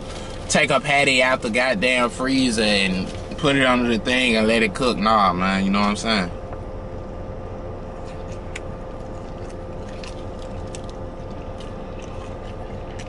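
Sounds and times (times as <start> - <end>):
mechanical hum in car cabin: 0.0 - 13.0
man chewing food: 7.9 - 13.0.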